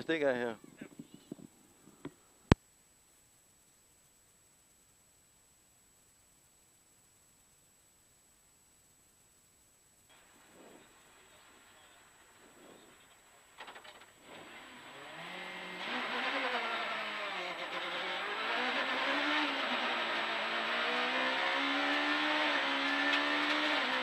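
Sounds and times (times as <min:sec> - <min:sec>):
car engine accelerating: 0:10.4 - 0:24.0.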